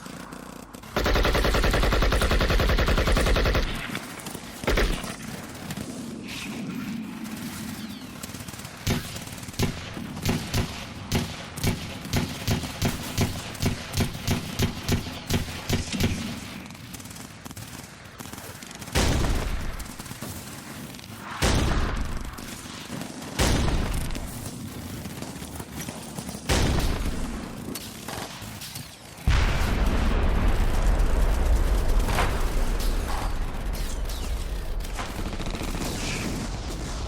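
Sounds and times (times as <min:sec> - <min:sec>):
rapid gunfire: 0:00.0 - 0:37.0
heavy explosion blasts: 0:29.3 - 0:37.0.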